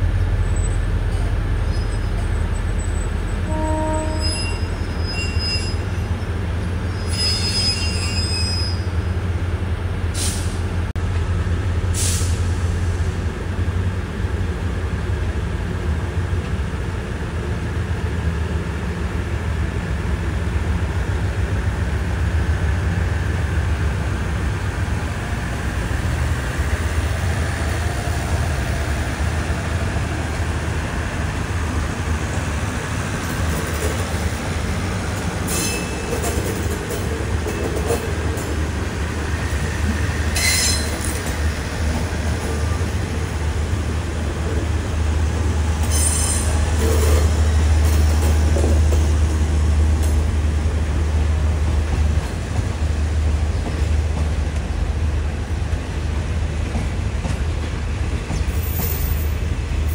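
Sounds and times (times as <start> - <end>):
passenger train rumbling past: 0.0 - 59.9
train wheel squeals: 0.4 - 9.0, 35.4 - 37.9, 39.5 - 41.4, 45.7 - 48.4, 58.4 - 59.5.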